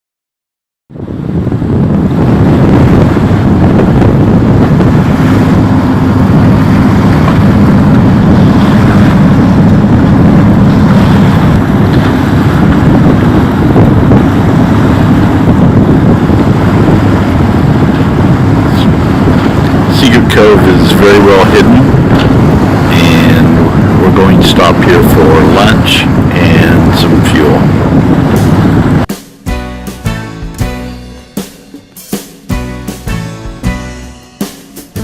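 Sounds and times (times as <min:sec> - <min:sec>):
wind on microphone: 0:00.9 - 0:29.1
steady low drone: 0:00.9 - 0:35.0
water wash: 0:01.9 - 0:29.1.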